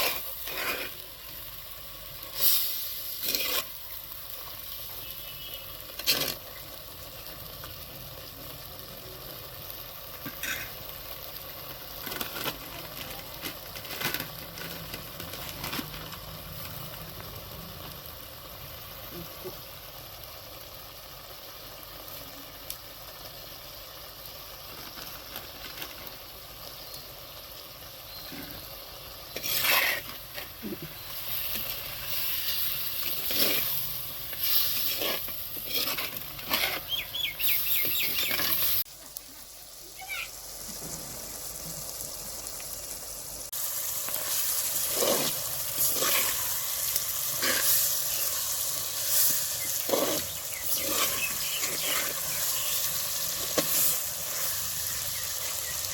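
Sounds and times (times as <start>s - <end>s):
spoon scraping a pan: 0.0s - 1.1s, 2.4s - 3.9s, 5.9s - 6.5s, 28.2s - 38.8s, 44.1s - 55.0s
chicken sizzling in a pan: 0.0s - 55.9s.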